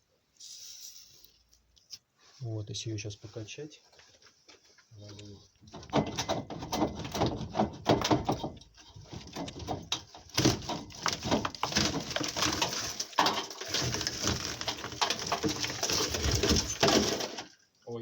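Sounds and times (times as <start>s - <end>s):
drywall partition creaking and knocking: 5.6s - 17.6s.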